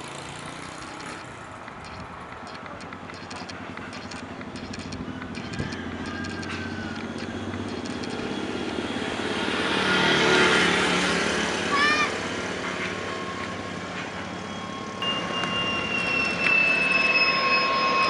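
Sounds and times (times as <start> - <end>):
jet airliner passing: 0.1 - 13.8.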